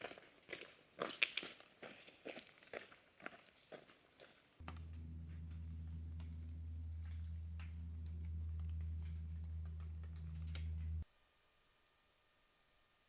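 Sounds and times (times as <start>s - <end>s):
high-pitched insect trill: 4.6s - 11.0s
low steady hum: 4.6s - 12.6s.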